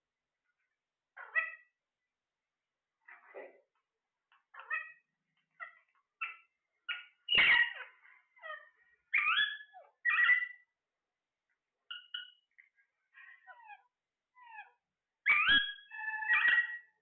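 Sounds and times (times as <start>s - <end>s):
parrot squawking and chirping: 1.2s - 1.8s, 4.3s - 10.7s, 11.9s - 17.0s.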